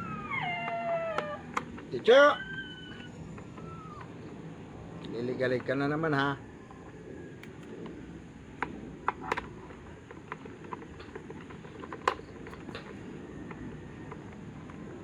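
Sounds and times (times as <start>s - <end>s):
low background hum: 0.0s - 15.0s
tools clicking and tapping: 7.4s - 7.7s, 8.6s - 13.0s.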